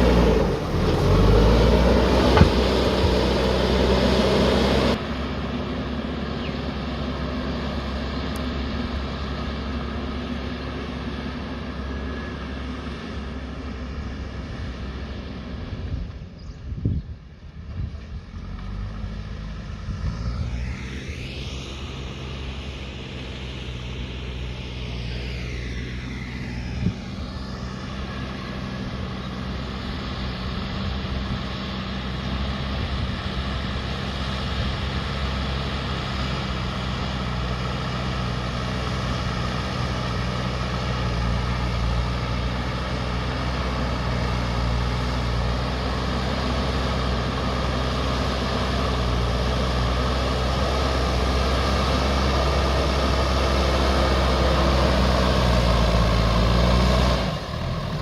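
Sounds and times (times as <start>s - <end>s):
diesel engine running: 0.0s - 58.0s
sharp knock: 2.3s - 2.7s.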